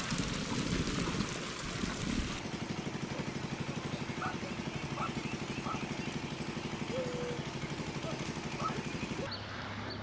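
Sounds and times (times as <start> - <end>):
rushing splashing water: 0.0 - 2.4
small engine puttering: 0.0 - 9.4.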